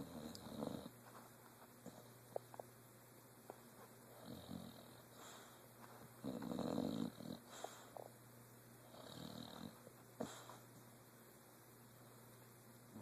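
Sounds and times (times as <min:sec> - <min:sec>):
dog snoring: 0:00.0 - 0:01.0, 0:04.1 - 0:05.6, 0:06.2 - 0:08.1, 0:08.8 - 0:10.6.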